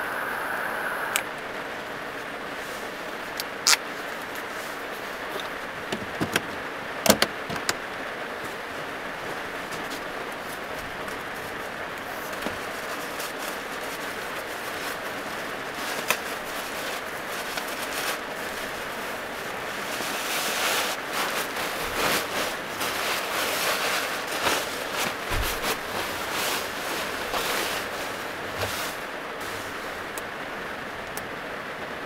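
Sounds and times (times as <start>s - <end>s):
heavy rain drumming on van roof: 1.4s - 32.0s
sleeping bag rustling: 8.1s - 30.2s.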